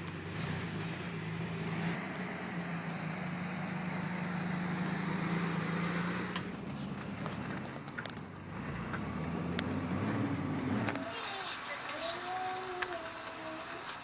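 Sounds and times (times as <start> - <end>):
road or wind noise: 0.0 - 14.0
vehicle engine humming: 0.7 - 7.5, 10.2 - 14.0.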